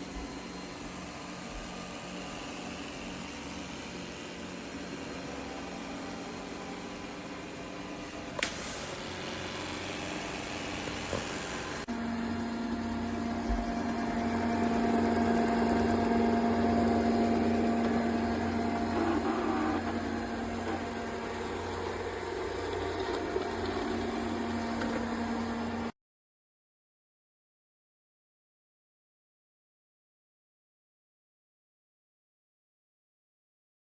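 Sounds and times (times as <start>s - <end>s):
louder hum with low tone: 0.0s - 25.9s
robot vacuum motor humming: 0.0s - 25.9s.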